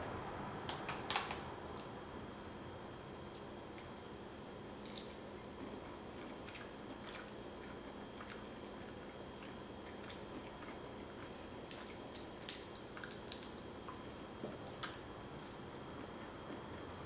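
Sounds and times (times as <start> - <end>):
person chewing: 4.8 - 16.9.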